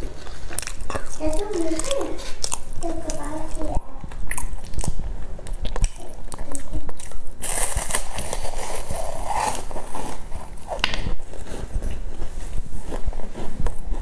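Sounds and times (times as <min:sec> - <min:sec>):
chewing rice cake: 0:00.0 - 0:14.0
wet mouth clicks: 0:04.1 - 0:08.2.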